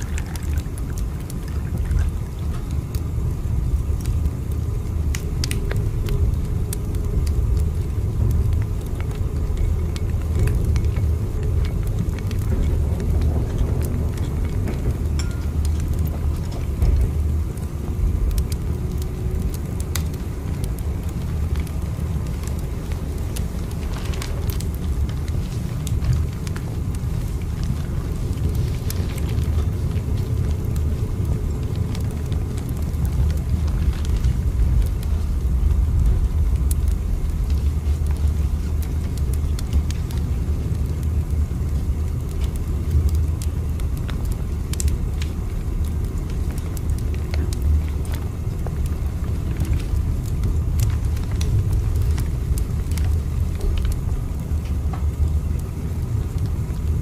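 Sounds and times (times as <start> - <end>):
faint clicks and crackles: 0.0 - 57.0
train rumbling: 7.2 - 41.9.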